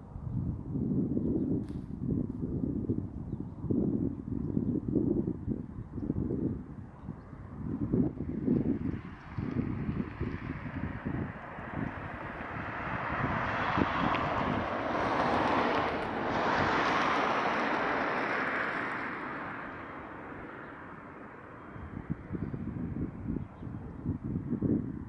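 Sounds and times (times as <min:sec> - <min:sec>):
wind buffeting microphone: 0:00.0 - 0:25.0
vehicle passing by: 0:07.8 - 0:24.1.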